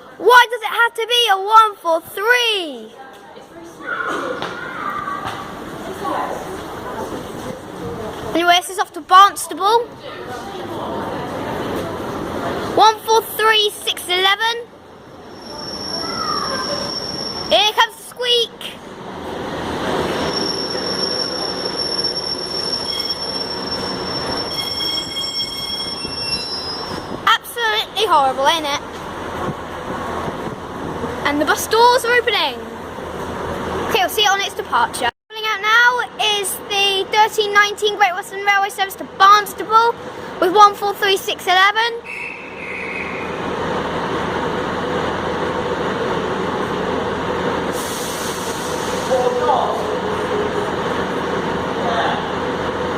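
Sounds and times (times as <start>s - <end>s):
squealing tone: 15.2s - 17.6s, 20.1s - 27.2s
train wheel squeak: 15.2s - 17.7s, 20.0s - 27.2s
diesel train engine running: 42.1s - 52.9s.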